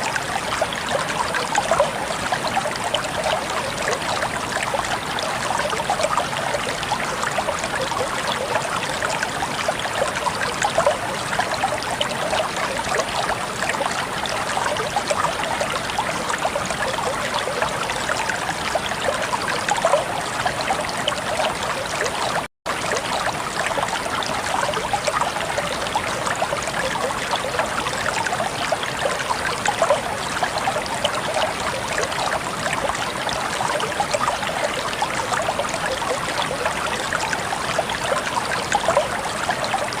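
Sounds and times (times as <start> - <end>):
stream babbling over stones: 0.0 - 40.0.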